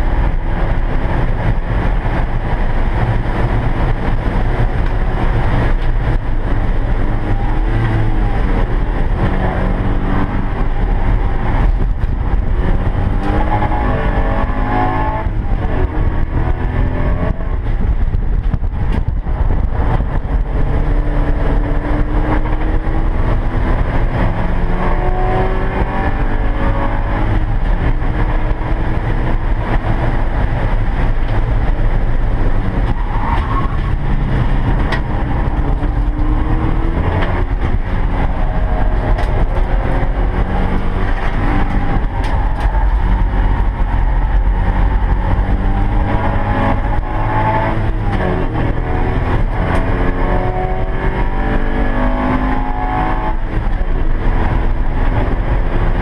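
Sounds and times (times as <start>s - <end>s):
race car engine revving: 0.0s - 56.0s
road and wind noise: 0.0s - 56.0s.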